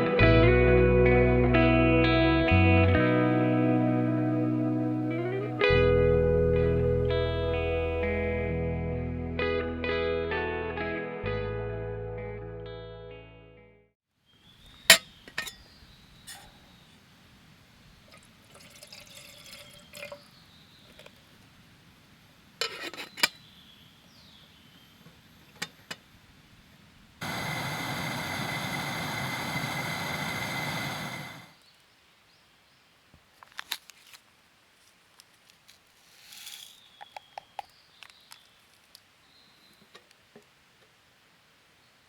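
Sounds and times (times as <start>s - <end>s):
cookware clinking: 14.9s - 15.6s
liquid pouring: 18.1s - 20.2s.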